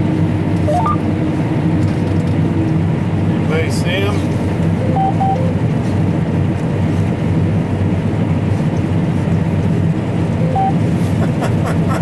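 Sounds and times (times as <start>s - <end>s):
combine harvester droning: 0.0s - 12.0s
short beep: 0.7s - 1.0s, 4.8s - 5.6s, 10.4s - 10.8s.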